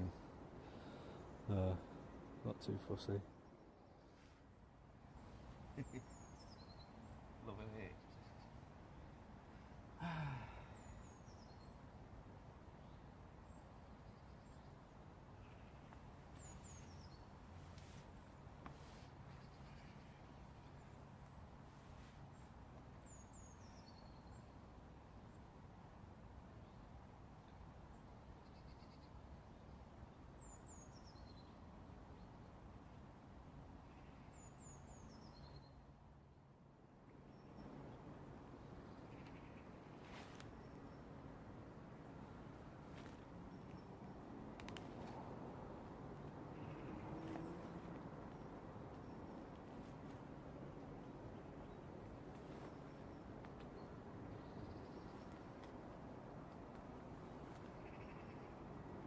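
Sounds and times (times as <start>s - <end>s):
songbird singing: 0.0s - 25.5s, 26.4s - 59.0s
low background rush: 0.0s - 28.3s
man sighing: 10.0s - 10.9s.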